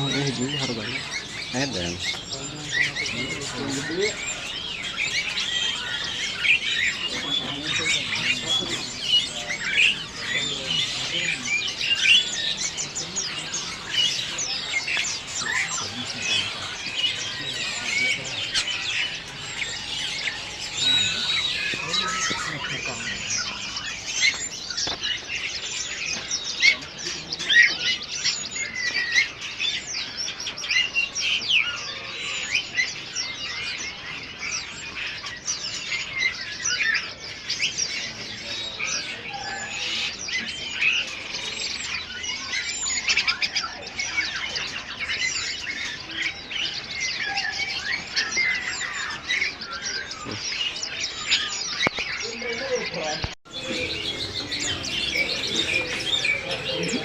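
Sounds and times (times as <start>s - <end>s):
songbirds chirping and twittering: 0.0s - 57.0s.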